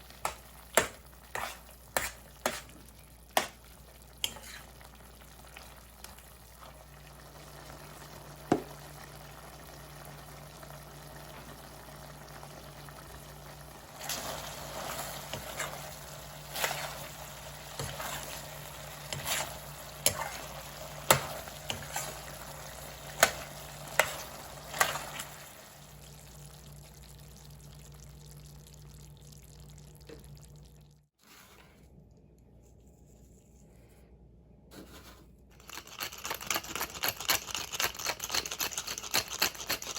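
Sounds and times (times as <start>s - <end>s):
food frying in a pan: 0.0s - 31.1s
utensil scraping a pan: 0.8s - 2.8s, 4.2s - 4.9s, 14.1s - 22.5s.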